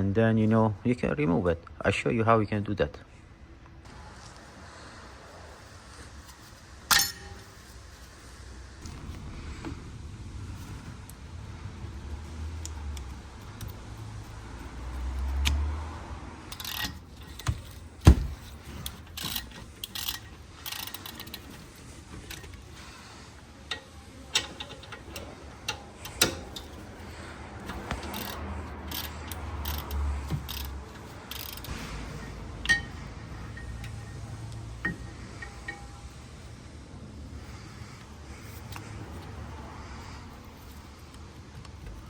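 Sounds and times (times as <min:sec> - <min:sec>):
hand tools clinking on metal: 0:06.9 - 0:07.6, 0:23.7 - 0:26.9, 0:27.7 - 0:36.1
metal taps: 0:23.7 - 0:27.0, 0:32.6 - 0:36.1.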